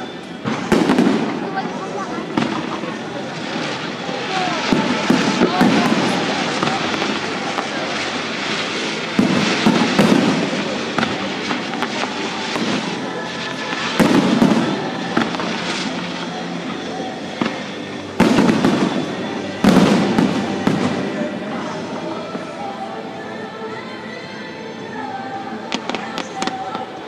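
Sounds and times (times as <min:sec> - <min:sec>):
firework crackling: 0:00.0 - 0:24.0, 0:24.8 - 0:27.0.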